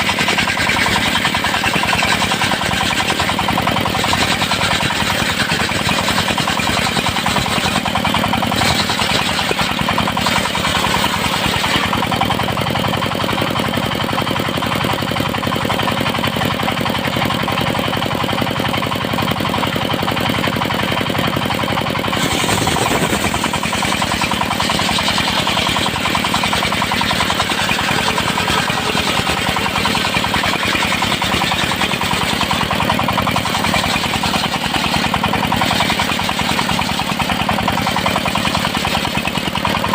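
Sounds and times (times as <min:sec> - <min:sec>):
circular saw cutting wood: 0:00.0 - 0:13.1, 0:22.0 - 0:39.9
engine firing rapidly: 0:00.0 - 0:39.9.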